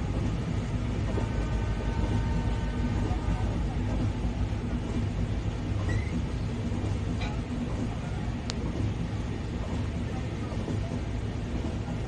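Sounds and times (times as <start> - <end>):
train wheels rumbling on rails: 0.0 - 12.0
faint high squeak: 5.8 - 6.2.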